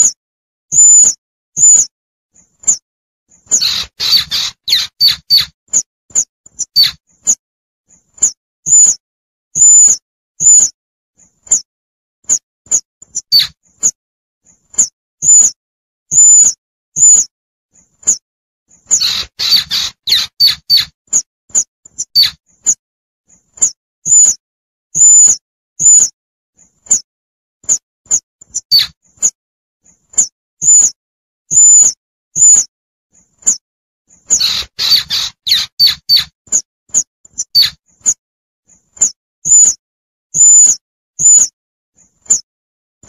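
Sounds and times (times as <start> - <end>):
baby squirrel squeaking: 0.0 - 1.9, 2.6 - 2.8, 3.5 - 7.4, 8.2 - 9.0, 9.6 - 10.8, 12.3 - 14.0, 14.8 - 17.3, 18.9 - 22.8, 23.6 - 24.4, 25.0 - 26.1, 27.6 - 29.4, 30.2 - 32.7, 34.2 - 38.2, 39.0 - 39.8, 40.4 - 41.5.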